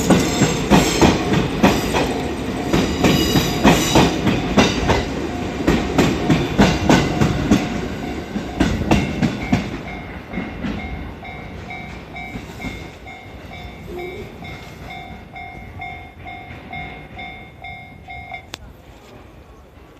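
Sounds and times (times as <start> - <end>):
train wheels clacking over rail joints: 0.0 - 13.6.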